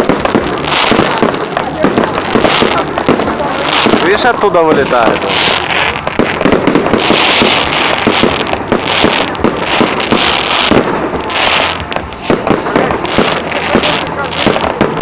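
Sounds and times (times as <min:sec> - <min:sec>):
fireworks bangs and crackling: 0:00.0 - 0:15.0
fireworks hiss: 0:00.0 - 0:15.0.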